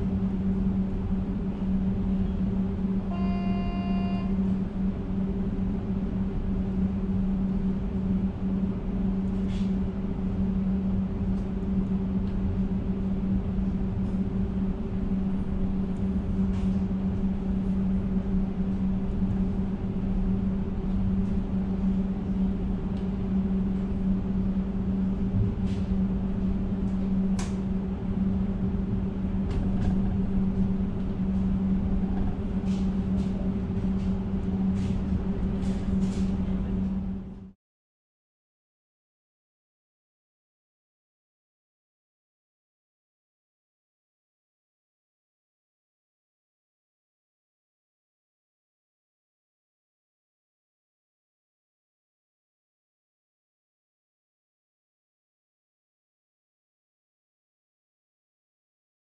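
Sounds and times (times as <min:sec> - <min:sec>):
train interior hum and rumble: 0:00.0 - 0:37.6.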